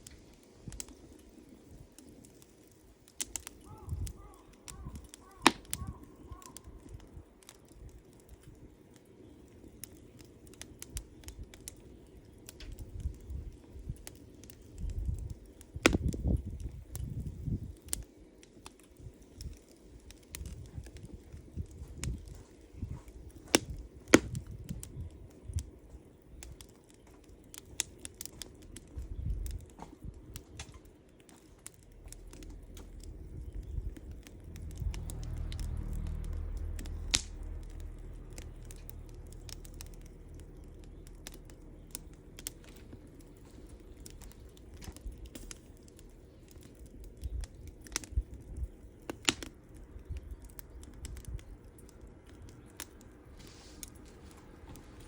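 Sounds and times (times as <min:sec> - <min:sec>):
campfire crackling and popping: 0:00.0 - 0:55.0
low rumble: 0:31.8 - 0:48.8.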